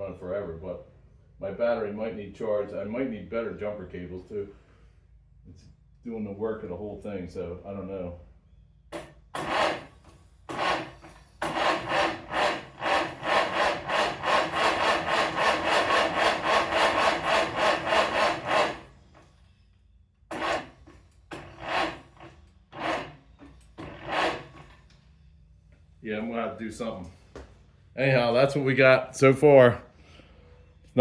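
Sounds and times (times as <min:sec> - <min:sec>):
tractor engine cranking: 0:08.9 - 0:19.6, 0:20.2 - 0:25.3.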